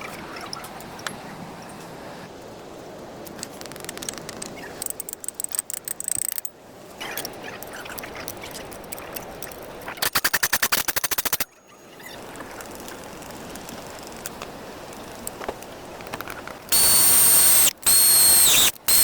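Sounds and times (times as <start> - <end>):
rapid sharp clicks: 16.7 - 19.0.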